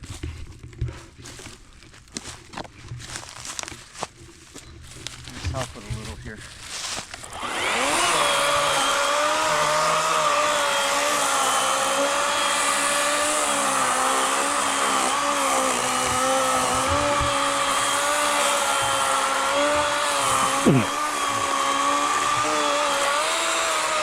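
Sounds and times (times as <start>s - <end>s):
electric chainsaw cutting log: 6.8s - 24.0s.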